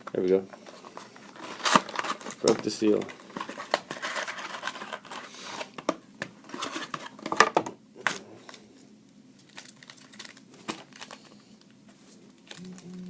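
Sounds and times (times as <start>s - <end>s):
plastic wrapping crinkling: 9.4s - 11.7s, 12.3s - 13.0s.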